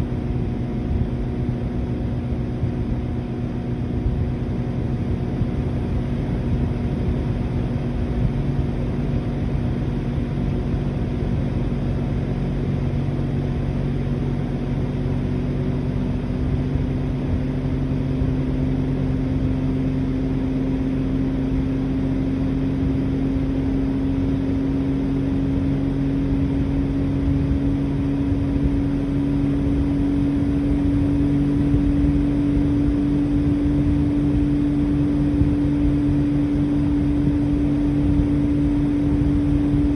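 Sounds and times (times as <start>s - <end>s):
low steady hum: 0.0s - 39.9s
rush of outdoor fan: 0.0s - 39.9s
air conditioner compressor humming: 27.3s - 39.9s.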